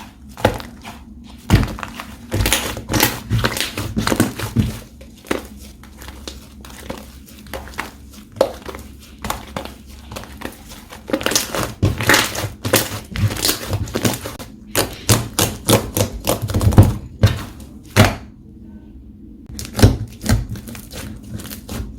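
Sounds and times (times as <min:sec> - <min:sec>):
sticky slime squishing and clicking: 0:01.5 - 0:18.2.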